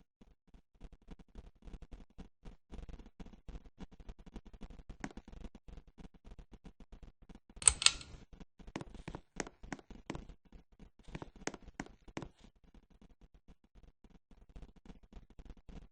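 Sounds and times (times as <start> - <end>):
sharp mechanical clicks: 7.6 - 8.2.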